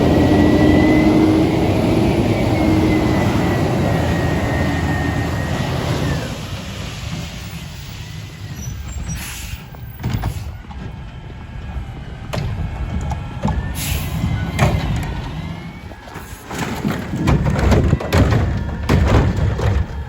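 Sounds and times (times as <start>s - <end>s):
garbage truck engine rumbling: 0.0s - 20.0s
clunks: 8.5s - 20.0s.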